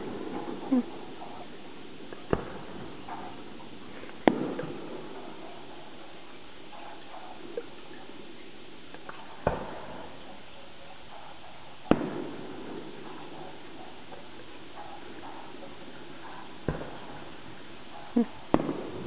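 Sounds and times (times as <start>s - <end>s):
fireworks bangs: 0.0s - 19.0s
faint firework pops: 2.1s - 3.5s, 4.1s - 5.2s, 9.0s - 10.2s, 11.8s - 17.4s, 18.5s - 19.0s.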